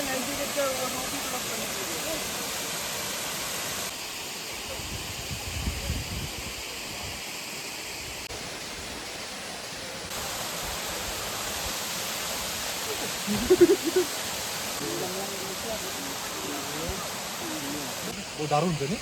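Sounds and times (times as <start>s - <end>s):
voice: 0.0s - 2.4s
waterfall rushing: 0.0s - 5.0s, 6.6s - 19.0s.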